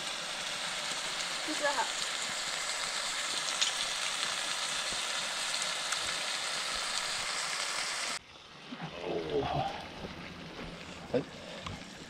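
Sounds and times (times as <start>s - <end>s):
chicken sizzling in hot oil: 0.0s - 8.2s.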